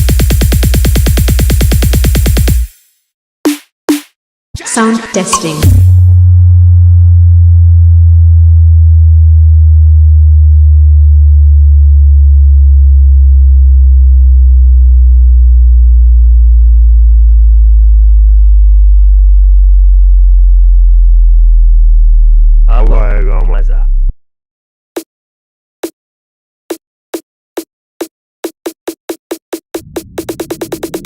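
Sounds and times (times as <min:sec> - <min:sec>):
deep sub-bass tone gliding down: 0:06.0 - 0:22.7.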